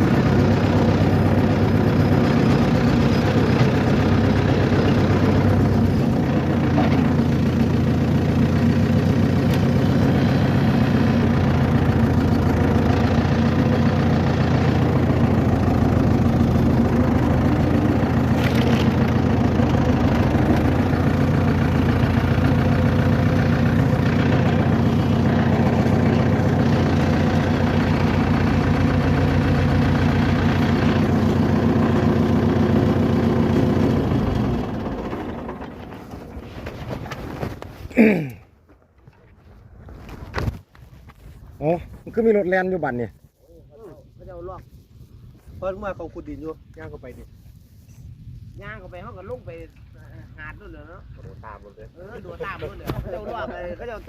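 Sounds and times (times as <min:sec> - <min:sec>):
vehicle engine humming: 0:00.0 - 0:41.6.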